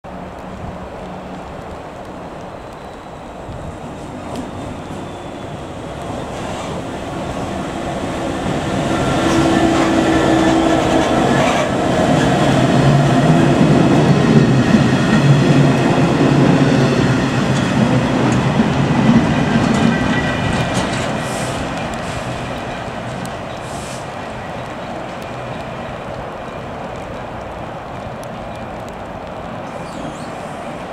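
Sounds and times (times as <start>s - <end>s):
wagons clattering over rail joints: 9.2s - 23.6s.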